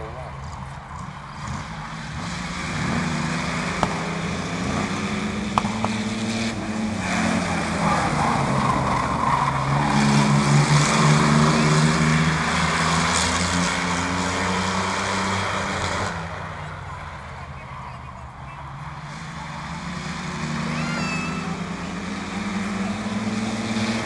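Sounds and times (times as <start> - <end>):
racing truck engines passing: 0.0 - 24.0
sharp cracks: 5.4 - 6.1.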